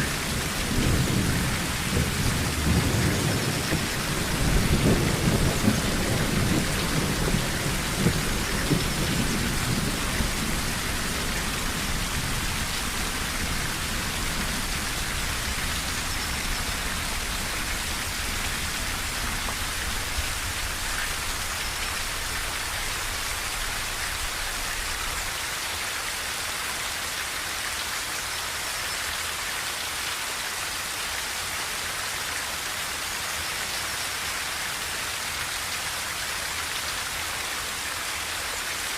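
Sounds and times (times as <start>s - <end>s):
rain drumming on a tin roof: 0.0s - 38.9s
thunder rumble: 0.1s - 25.4s.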